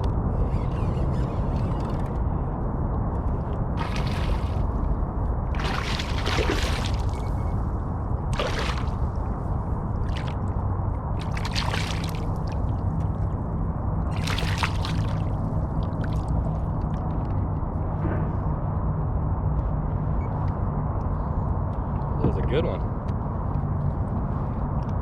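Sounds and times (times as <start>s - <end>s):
steady low rumble: 0.0s - 25.0s
water splashing and sloshing: 3.2s - 18.5s.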